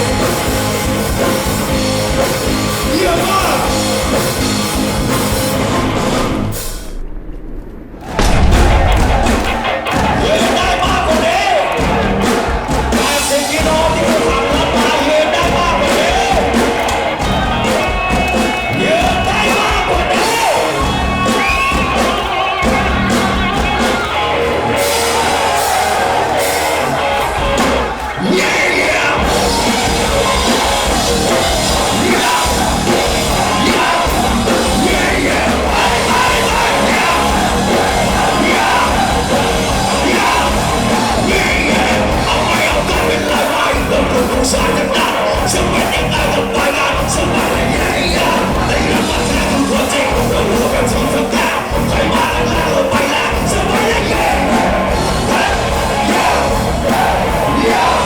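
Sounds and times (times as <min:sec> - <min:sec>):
live rock band playing: 0:00.0 - 0:06.7, 0:08.2 - 0:58.0
audience yelling along: 0:08.0 - 0:58.0
person singing: 0:25.7 - 0:58.0.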